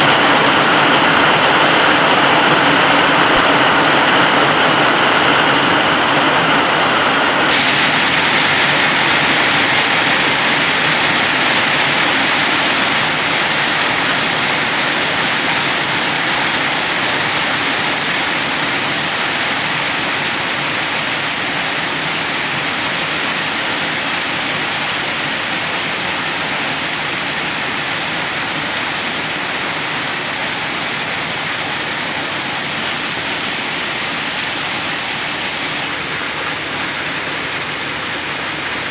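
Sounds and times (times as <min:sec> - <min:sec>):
heavy rain hissing: 0:00.0 - 0:38.9.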